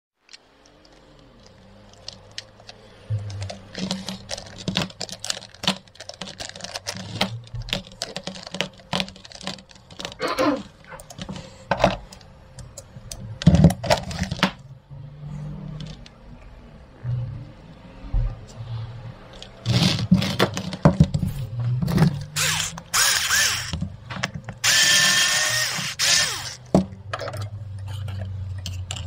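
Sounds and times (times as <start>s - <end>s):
plastic parts clicking and clattering: 0.2s - 14.6s, 19.3s - 29.0s.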